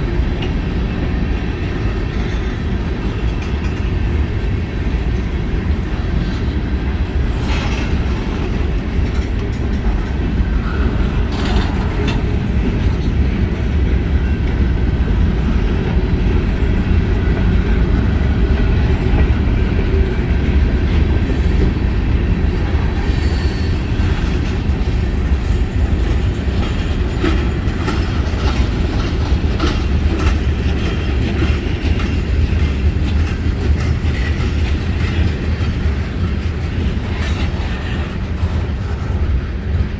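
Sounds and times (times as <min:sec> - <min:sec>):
freight train rumbling past: 0:00.0 - 0:39.9
wheels clacking over rail joints: 0:00.0 - 0:39.9.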